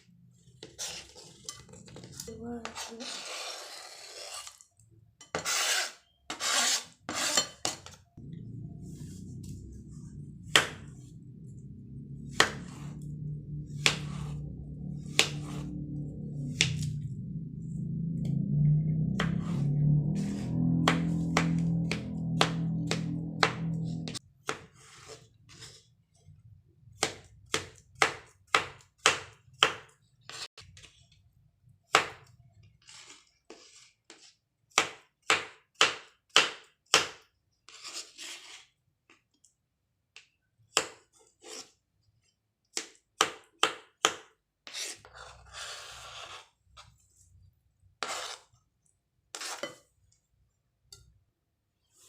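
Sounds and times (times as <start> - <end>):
knife chopping on cutting board: 15.1 - 15.6.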